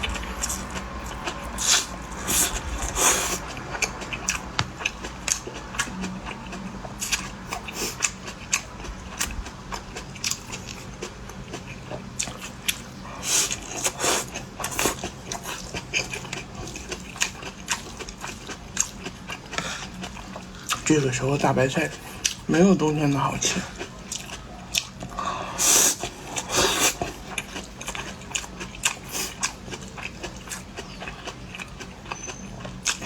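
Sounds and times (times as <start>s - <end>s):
person chewing crunchy food: 0.0s - 33.0s.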